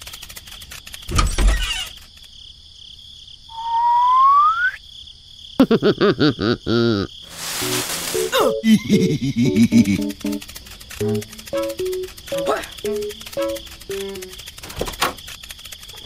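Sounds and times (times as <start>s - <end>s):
rising cartoon whistle: 3.5s - 4.8s
high-pitched background tone: 7.4s - 14.5s.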